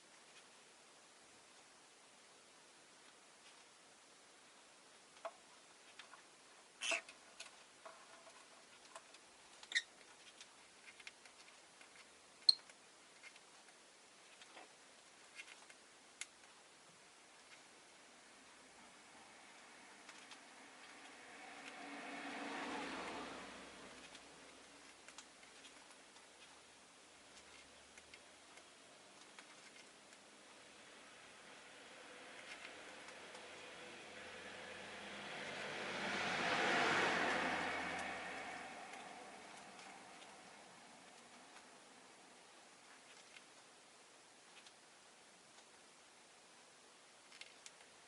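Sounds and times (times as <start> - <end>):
low hiss: 0.0 - 48.0
lovebird chirps: 12.4 - 12.7.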